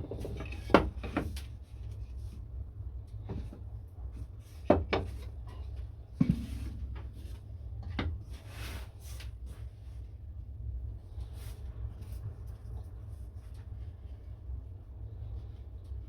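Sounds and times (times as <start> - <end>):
wooden knocks and clatters: 0.0 - 1.4, 4.6 - 5.4, 6.2 - 8.2
steady low hum: 0.0 - 16.0.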